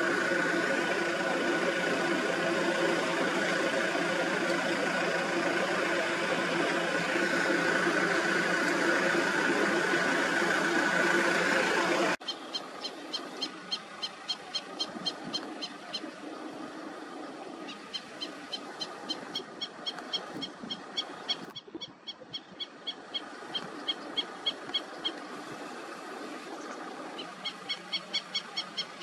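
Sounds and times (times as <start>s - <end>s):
vehicle engine idling: 0.0s - 29.0s.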